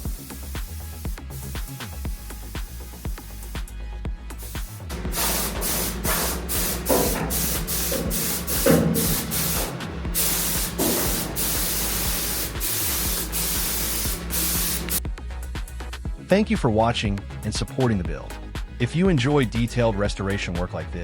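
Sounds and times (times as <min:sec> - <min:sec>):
spray paint hissing: 0:00.0 - 0:03.7, 0:04.4 - 0:15.0.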